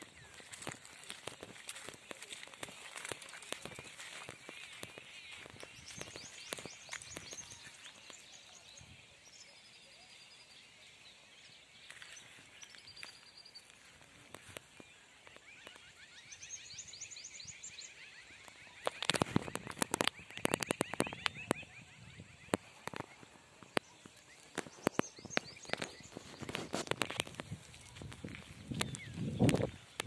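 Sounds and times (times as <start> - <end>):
sharp clicks and crackles: 0.0 - 8.2, 18.5 - 21.6, 22.5 - 30.0
bird chirping: 0.0 - 30.0.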